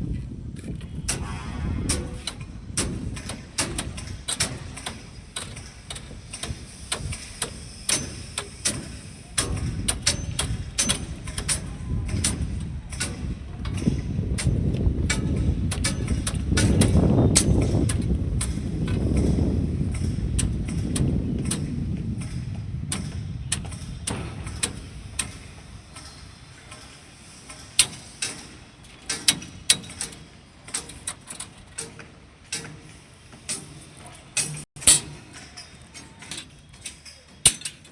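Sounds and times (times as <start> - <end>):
low machine rumble: 0.0 - 26.7.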